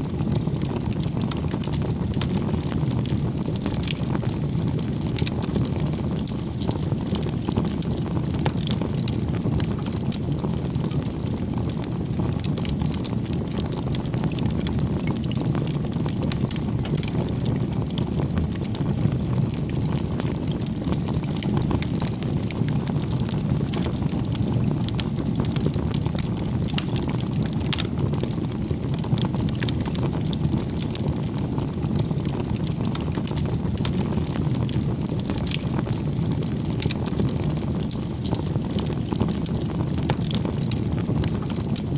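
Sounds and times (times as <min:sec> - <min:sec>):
wood fire crackling: 0:00.0 - 0:41.9.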